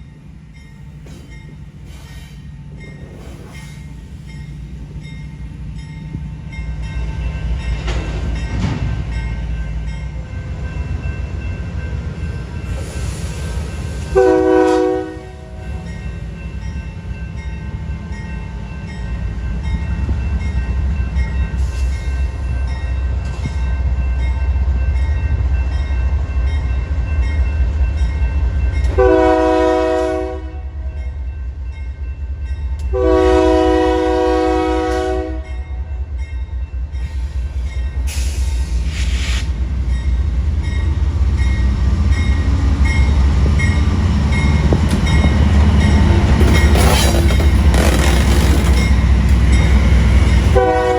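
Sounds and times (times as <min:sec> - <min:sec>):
diesel train engine rumble: 0:00.0 - 0:50.9
locomotive air horn blasts: 0:14.2 - 0:15.8, 0:29.0 - 0:30.7, 0:32.9 - 0:35.6, 0:50.5 - 0:50.9.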